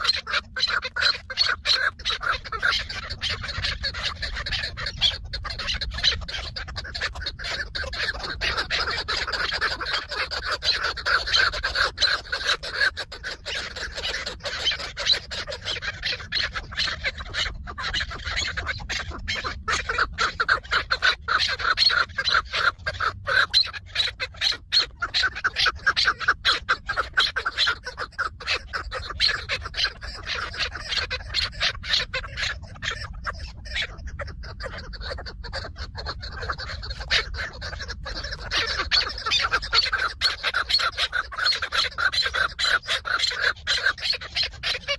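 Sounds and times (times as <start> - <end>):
partridges calling: 0.0 - 44.9.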